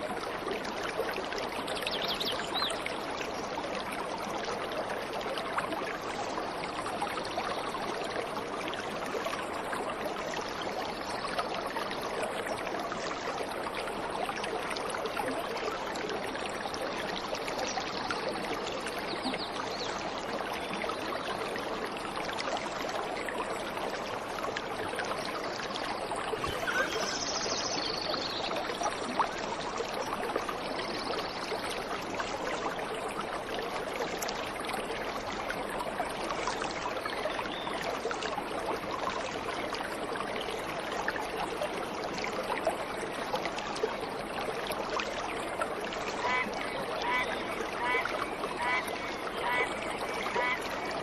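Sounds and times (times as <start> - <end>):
waterfall rushing: 26.4 - 27.8
faint high bird calls: 26.4 - 28.3.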